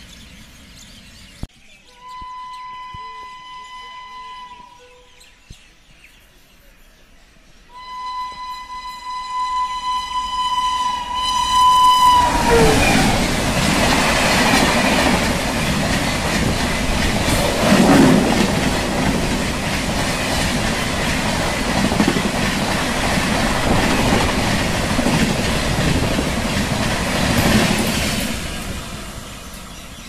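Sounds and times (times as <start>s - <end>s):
train wheels clattering on rails: 12.4s - 30.0s.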